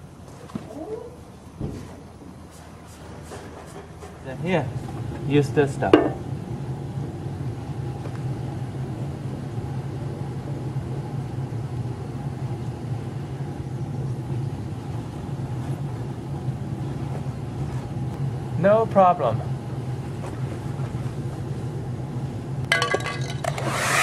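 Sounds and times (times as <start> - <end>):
hair dryer running: 23.4 - 24.0.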